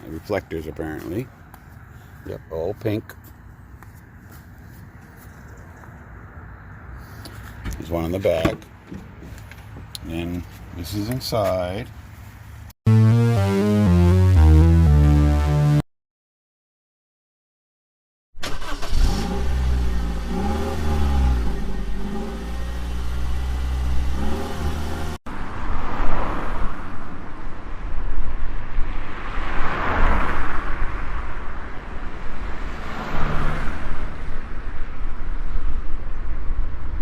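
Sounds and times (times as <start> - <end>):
vehicles passing: 0.0 - 12.7, 19.3 - 37.0
engine revving: 18.4 - 25.2.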